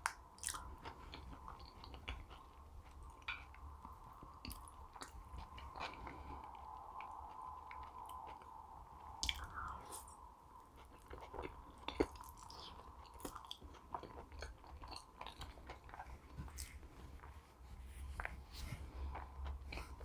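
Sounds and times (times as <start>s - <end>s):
chewing with wet mouth clicks: 0.0s - 17.5s, 18.1s - 20.0s.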